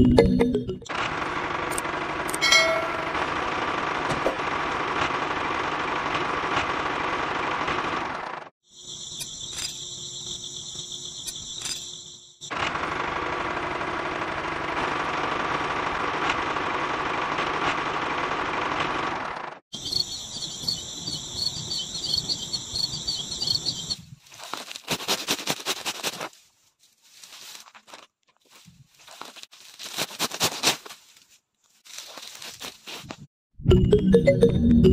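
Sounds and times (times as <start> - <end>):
insects chirping: 8.6 - 12.5, 19.7 - 24.6
sickle snipping seedlings: 24.3 - 26.5, 27.6 - 33.3.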